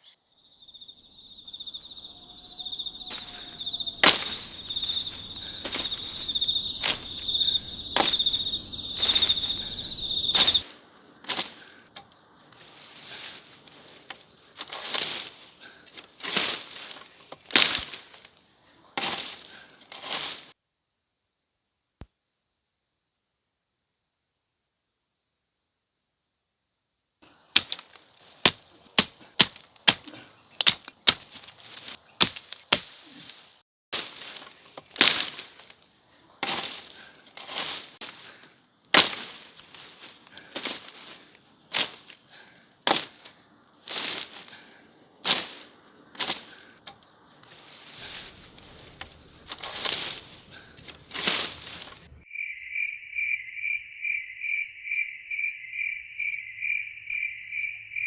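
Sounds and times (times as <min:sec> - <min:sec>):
cricket chirping: 0:00.0 - 0:18.3, 0:34.0 - 0:58.0
sharp knocks and cracks: 0:03.1 - 0:18.3, 0:27.2 - 0:33.4, 0:34.0 - 0:35.8, 0:36.4 - 0:42.2, 0:42.9 - 0:52.2.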